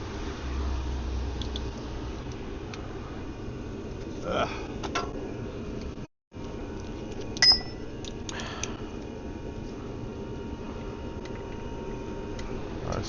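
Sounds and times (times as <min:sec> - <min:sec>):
metal tool clinking on metal: 0:07.4 - 0:07.9.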